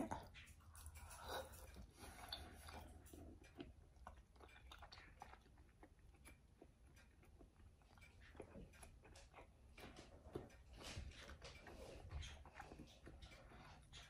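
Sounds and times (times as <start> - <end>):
person chewing: 0.0 - 9.6.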